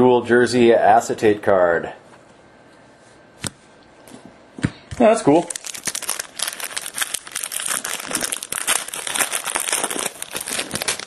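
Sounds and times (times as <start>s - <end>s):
foil wrapper crinkling and tearing: 5.3s - 11.0s.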